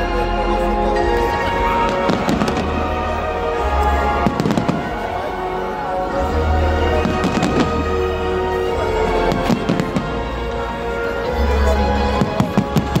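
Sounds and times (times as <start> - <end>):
loud music with deep bass: 0.0 - 13.0
fireworks bursting and crackling: 1.9 - 3.1, 3.9 - 5.3, 6.9 - 8.0, 9.3 - 10.3, 12.1 - 13.0.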